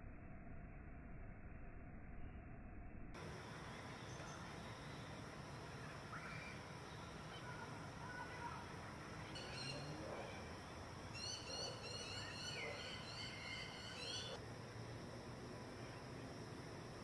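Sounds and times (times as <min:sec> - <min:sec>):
background hiss: 0:03.2 - 0:17.0
bird chirping: 0:09.2 - 0:14.4.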